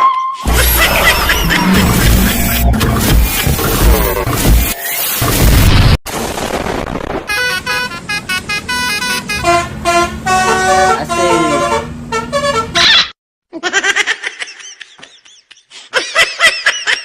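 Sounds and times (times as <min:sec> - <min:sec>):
steady noise: 0:00.5 - 0:06.4
bus musical horn tooting tune: 0:07.3 - 0:13.1.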